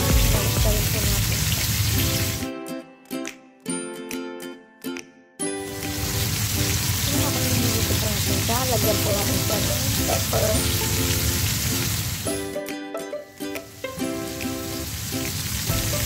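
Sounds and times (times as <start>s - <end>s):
chicken sizzling in oil: 0.0s - 2.4s, 5.6s - 12.6s, 13.5s - 16.0s.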